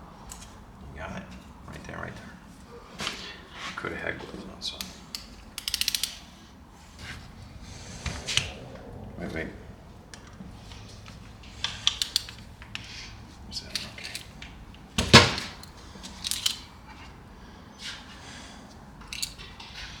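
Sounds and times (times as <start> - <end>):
metal hand tools clicking: 4.7 - 6.3, 11.4 - 12.9, 13.5 - 16.8, 19.0 - 20.0.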